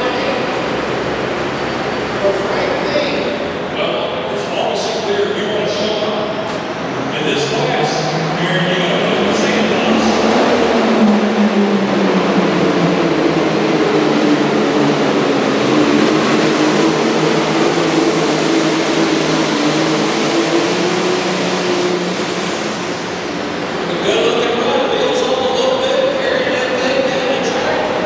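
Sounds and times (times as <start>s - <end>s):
tractor diesel engine roaring: 5.7s - 28.0s.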